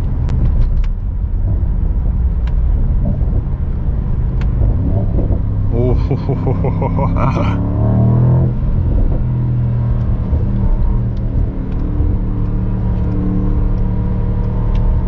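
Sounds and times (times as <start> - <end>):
low car engine note: 1.2 - 15.0.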